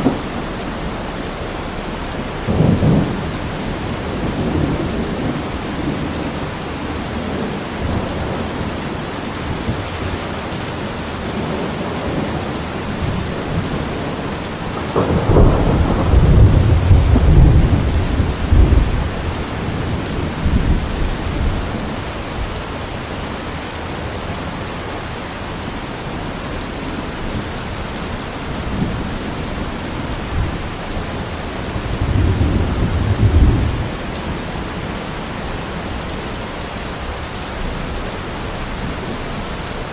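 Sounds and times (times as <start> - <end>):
rolling thunder: 0.0 - 8.8, 11.2 - 22.5, 28.4 - 35.6
steady rain falling: 0.0 - 39.9.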